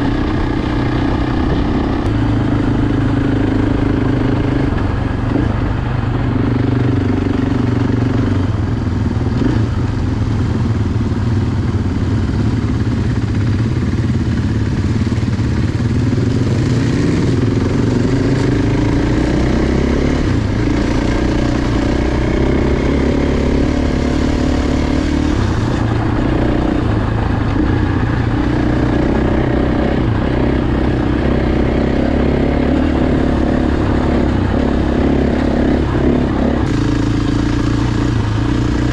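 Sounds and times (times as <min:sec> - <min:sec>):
off-road motorcycle engine revving: 0:00.0 - 0:38.9.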